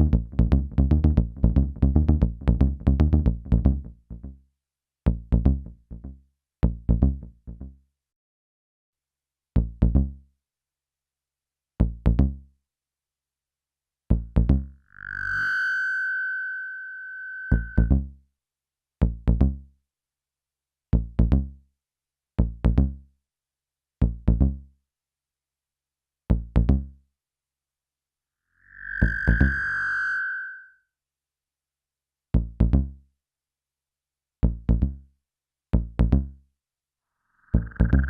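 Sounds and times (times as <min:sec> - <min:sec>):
synthesizer bass notes with delay: 0:00.0 - 0:04.3, 0:17.5 - 0:18.0, 0:28.7 - 0:29.7, 0:37.5 - 0:38.0
high steady synth tone: 0:14.9 - 0:17.9, 0:28.6 - 0:30.8, 0:37.4 - 0:38.0.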